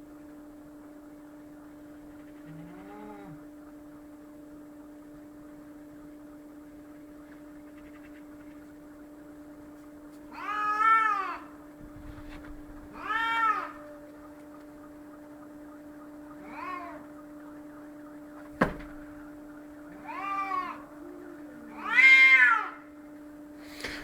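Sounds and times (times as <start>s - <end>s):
cat yowling: 10.3s - 11.6s, 12.9s - 14.2s, 16.4s - 17.2s, 20.0s - 22.9s.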